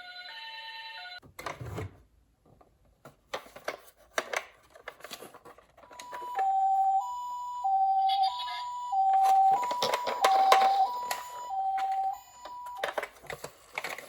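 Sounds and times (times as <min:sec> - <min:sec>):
toy ambulance two-tone siren: 0:00.0 - 0:01.2, 0:05.9 - 0:13.0
plastic rattles: 0:09.2 - 0:14.0.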